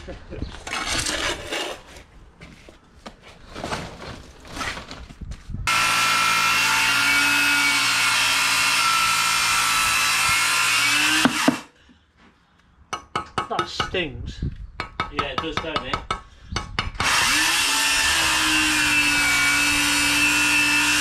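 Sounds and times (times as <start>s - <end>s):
light scrapes and knocks: 0.6s - 4.9s
power tool running: 5.7s - 11.7s, 17.0s - 21.0s.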